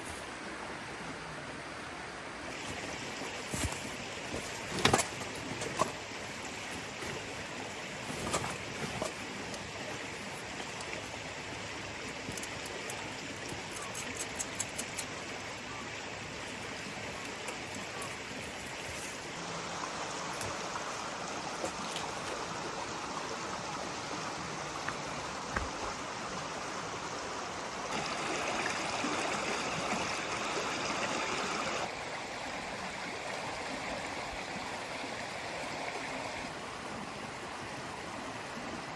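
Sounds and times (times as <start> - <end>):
rushing water: 0.0 - 38.9
small clicks: 12.0 - 15.2.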